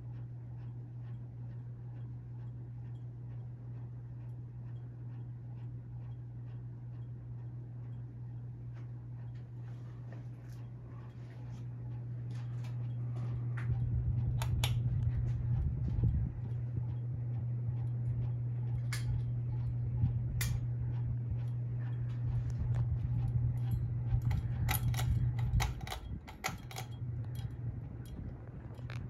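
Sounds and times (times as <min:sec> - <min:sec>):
ceiling fan humming: 0:00.0 - 0:29.0
sharp clicks: 0:23.6 - 0:28.2.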